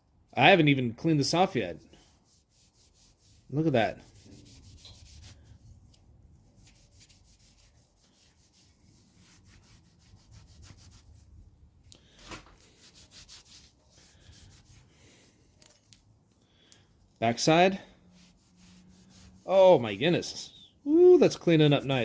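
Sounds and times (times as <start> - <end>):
brush scrubbing metal blade: 2.0 - 5.6, 12.6 - 14.9, 17.4 - 20.6, 21.2 - 22.0.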